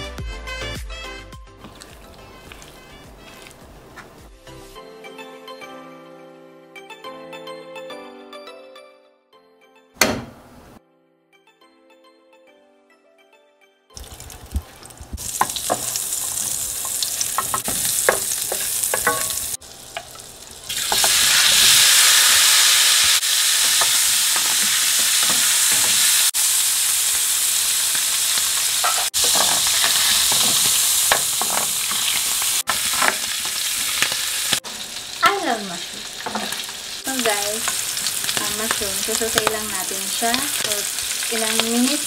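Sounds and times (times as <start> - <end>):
mushrooms sizzling in a pan: 14.0 - 42.0.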